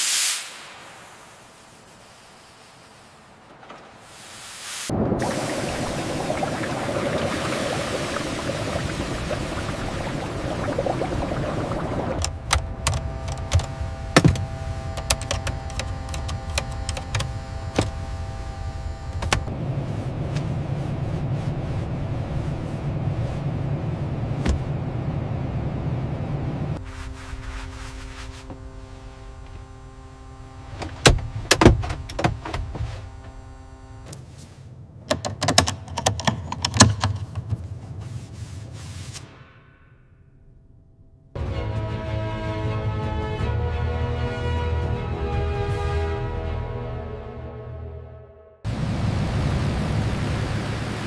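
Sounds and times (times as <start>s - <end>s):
rushing noise: 0.0s - 3.5s, 4.1s - 12.5s
steady hum: 0.0s - 35.1s
mechanical clicks and knocks: 12.2s - 18.0s, 35.0s - 37.6s.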